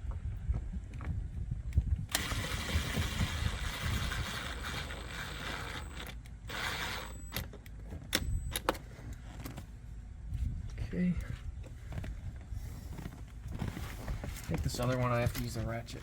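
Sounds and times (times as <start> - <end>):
hands and tools rustling scraping: 8.8 - 16.0.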